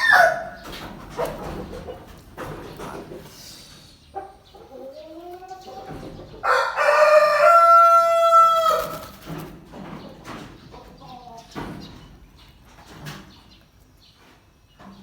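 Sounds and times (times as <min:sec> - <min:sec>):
rooster crowing: 0:00.0 - 0:00.6, 0:06.4 - 0:09.1.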